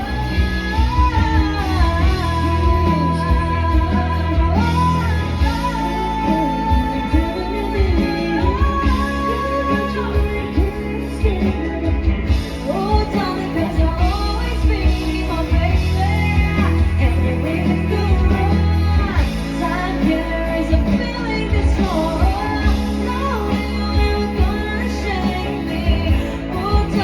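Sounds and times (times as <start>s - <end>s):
live band playing: 0.0s - 27.0s
person singing: 0.0s - 27.0s.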